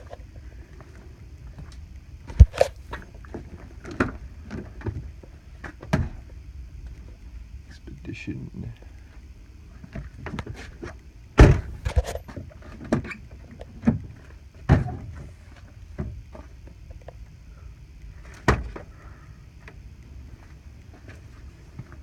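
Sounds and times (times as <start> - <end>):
metal clunks and knocks: 11.4 - 12.2.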